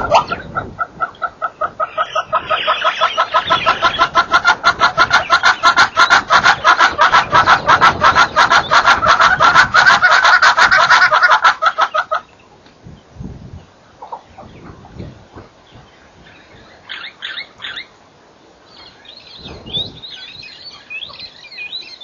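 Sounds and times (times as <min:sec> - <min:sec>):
bird clucking rapidly: 0:00.0 - 0:12.4.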